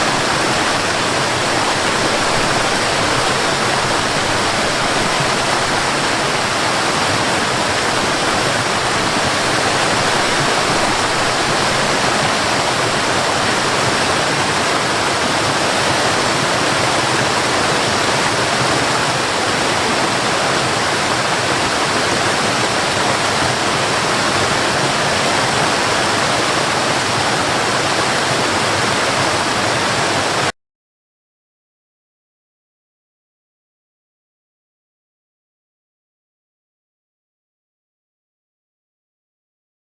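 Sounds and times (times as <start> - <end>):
waterfall rushing: 0.0 - 30.5.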